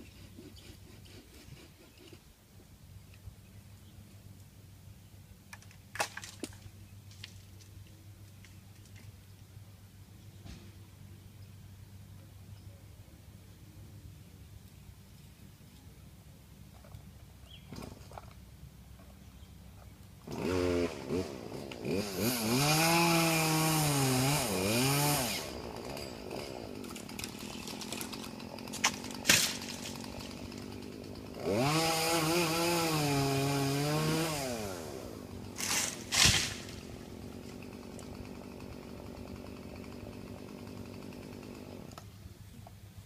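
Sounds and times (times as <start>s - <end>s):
chainsaw cutting: 20.2s - 42.1s.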